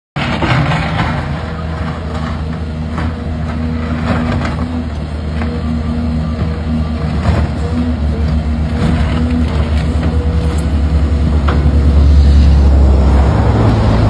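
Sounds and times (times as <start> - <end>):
digging knocks and clanks: 0.2 - 5.7
excavator diesel engine running: 0.2 - 14.0.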